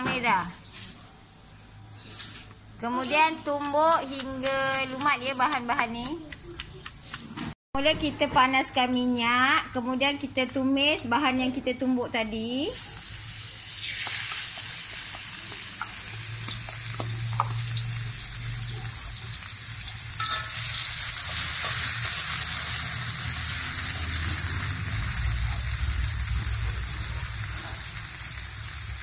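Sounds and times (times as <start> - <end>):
paste sizzling in hot oil: 12.7 - 29.0
metal spatula scraping a wok: 19.9 - 25.8.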